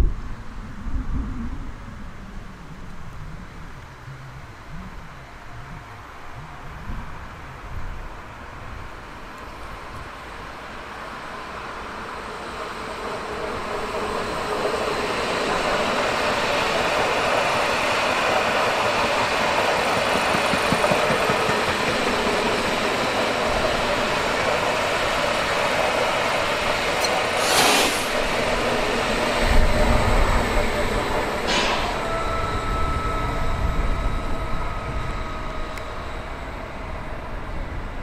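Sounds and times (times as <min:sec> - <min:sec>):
train running on rails: 0:02.5 - 0:38.0
loud hiss: 0:27.0 - 0:28.5.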